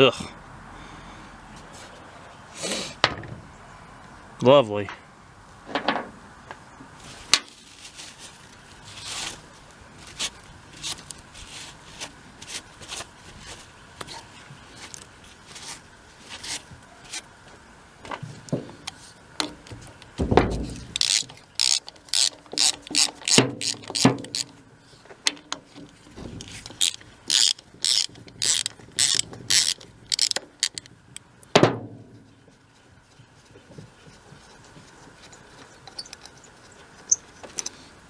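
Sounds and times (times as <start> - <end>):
hand ratchet clicking: 20.9 - 24.5, 26.4 - 30.9.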